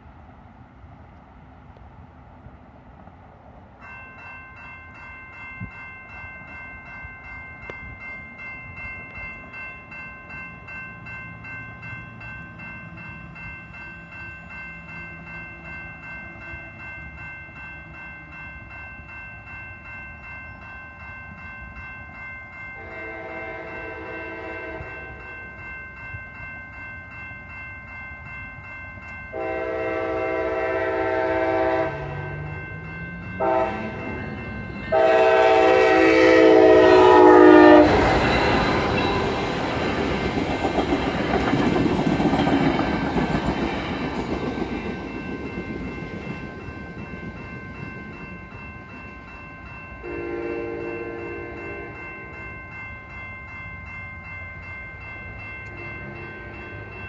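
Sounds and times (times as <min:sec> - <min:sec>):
railroad crossing bells ringing: 0:03.6 - 0:57.0
train horn blasts: 0:22.8 - 0:25.2, 0:29.3 - 0:32.4, 0:33.4 - 0:34.3, 0:34.9 - 0:39.4, 0:50.0 - 0:52.0
train wheel clatter: 0:33.3 - 0:48.6.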